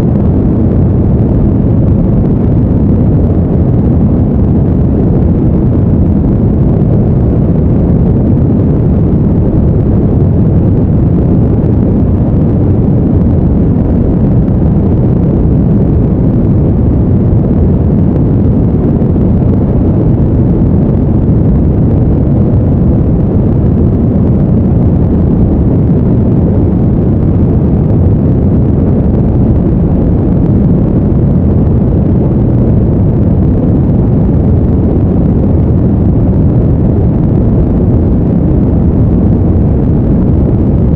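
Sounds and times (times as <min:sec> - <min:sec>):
deep rushing brown noise: 0:00.0 - 0:40.9.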